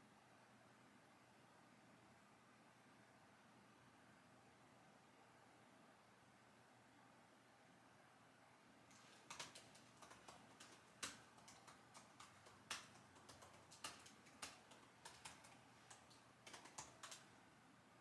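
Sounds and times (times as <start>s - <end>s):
typing on computer keyboard: 8.9s - 17.4s.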